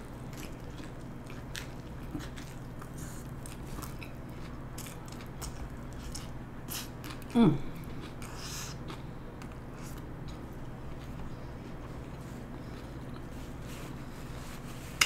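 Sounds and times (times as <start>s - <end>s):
wet chewing: 0.2s - 13.3s.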